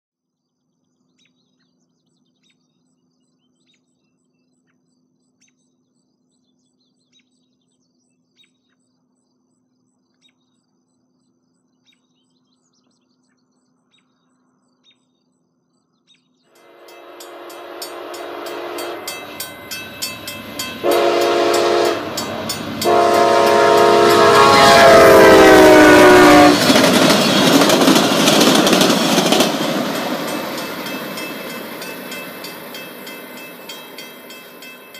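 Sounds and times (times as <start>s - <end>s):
train horn blasts: 16.6s - 34.9s
train cars rumbling and clattering: 16.8s - 34.9s.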